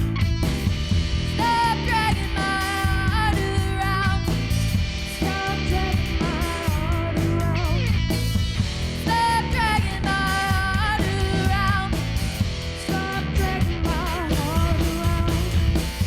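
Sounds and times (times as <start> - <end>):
drum kit: 0.0 - 16.0
electric guitar: 0.0 - 16.0
person singing: 5.1 - 7.9, 12.9 - 15.7.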